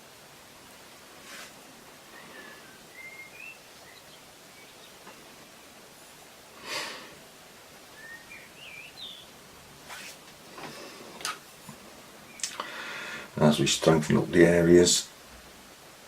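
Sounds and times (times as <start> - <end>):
steady hiss: 0.0 - 16.0
faint bird chirps: 2.1 - 5.8, 7.9 - 9.4, 12.2 - 12.6.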